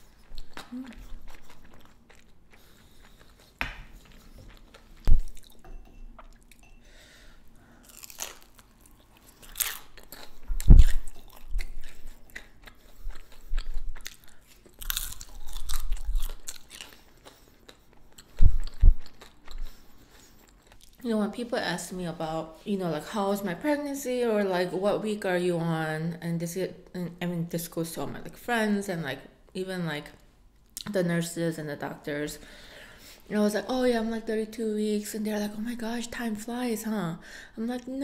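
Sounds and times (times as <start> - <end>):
person chewing and crunching: 0.0 - 5.6, 7.8 - 21.0.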